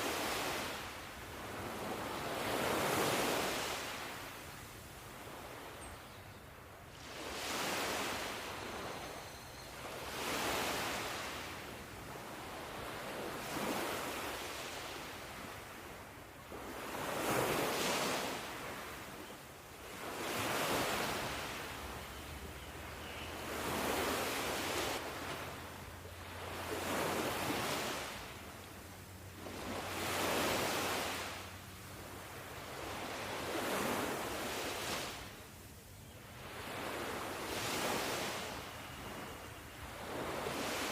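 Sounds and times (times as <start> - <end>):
ocean waves breaking on shore: 0.0 - 40.9.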